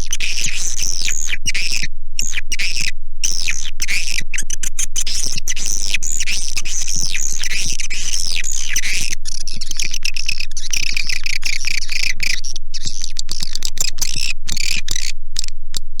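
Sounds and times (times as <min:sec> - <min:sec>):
birds twittering and clicking: 0:07.0 - 0:15.9.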